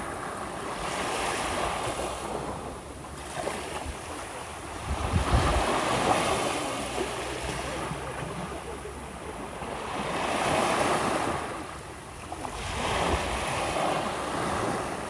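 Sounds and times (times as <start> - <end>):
small waves washing onto shore: 0.0 - 15.0
wind buffeting microphone: 4.7 - 6.4.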